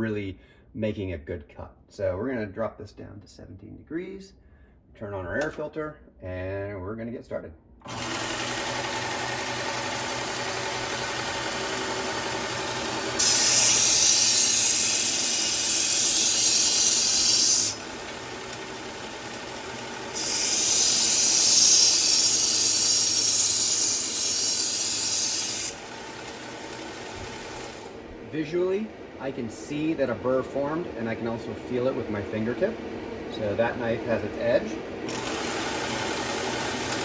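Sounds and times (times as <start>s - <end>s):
belt sharpener running: 7.9s - 28.0s, 35.0s - 37.0s
knife blade grinding hiss: 13.2s - 17.8s, 20.2s - 25.8s.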